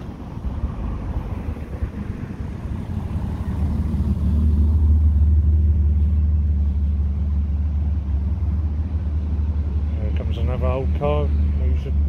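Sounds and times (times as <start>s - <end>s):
car engine rumbling past: 0.0s - 12.0s.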